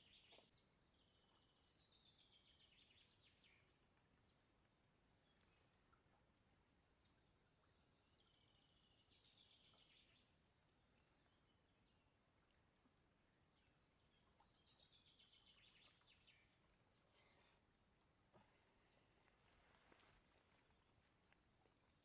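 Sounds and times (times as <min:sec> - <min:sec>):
faint birdsong with trill: 0:00.0 - 0:04.5, 0:05.2 - 0:12.1, 0:13.2 - 0:17.6
quiet outdoor ambience: 0:00.0 - 0:22.0.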